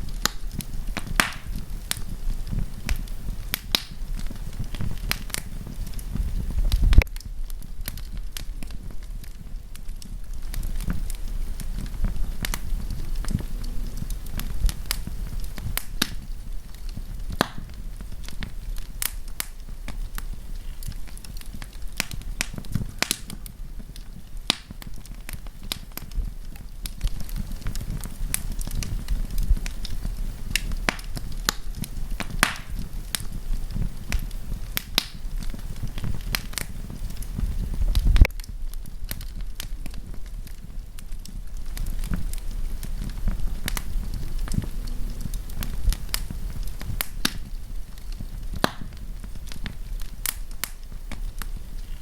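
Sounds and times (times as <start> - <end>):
campfire crackling: 0.0 - 52.0.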